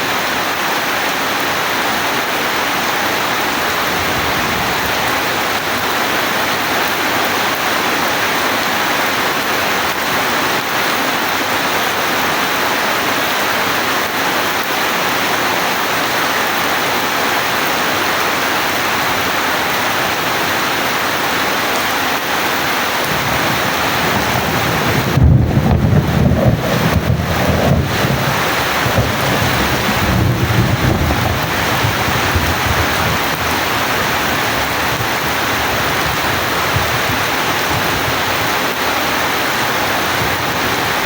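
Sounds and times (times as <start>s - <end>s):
steady rain hiss: 0.0s - 41.0s
low rumble of thunder: 3.7s - 5.5s, 23.0s - 38.3s.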